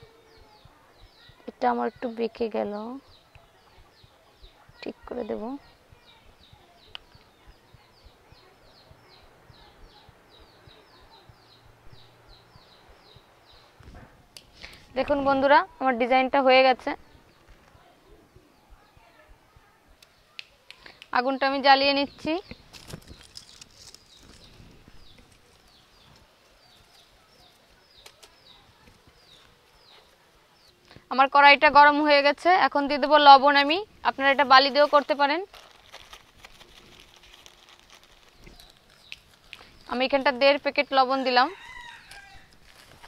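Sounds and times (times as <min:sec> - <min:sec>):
bird chirping: 0:00.0 - 0:13.9, 0:20.0 - 0:43.0
dry sticks clicking and rustling: 0:22.4 - 0:30.0, 0:34.7 - 0:40.1.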